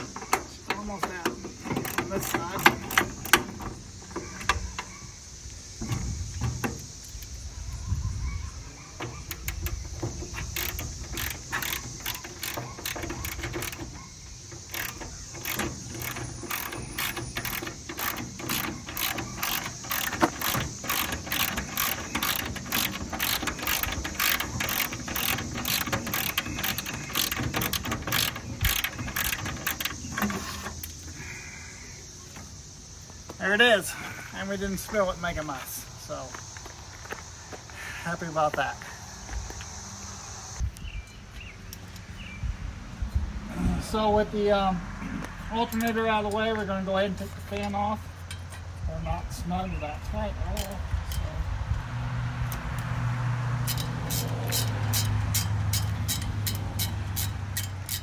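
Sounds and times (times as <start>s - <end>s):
knocking and handling of metal parts: 0.0s - 5.1s, 5.7s - 7.4s, 8.5s - 31.3s, 45.0s - 48.9s, 49.6s - 51.8s, 53.6s - 58.0s
ratchet wrench clicking: 0.2s - 3.6s, 9.2s - 31.0s, 53.6s - 58.0s.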